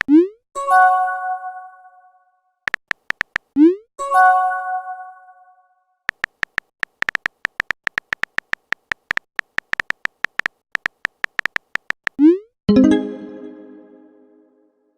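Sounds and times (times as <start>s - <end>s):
notification chime: 12.7s - 14.4s.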